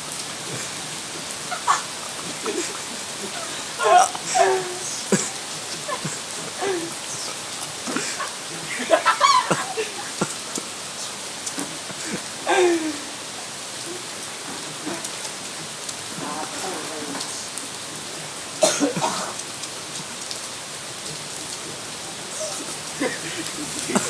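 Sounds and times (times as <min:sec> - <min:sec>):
steady rain falling: 0:00.0 - 0:24.0
wavering voice-like calls: 0:00.4 - 0:10.2.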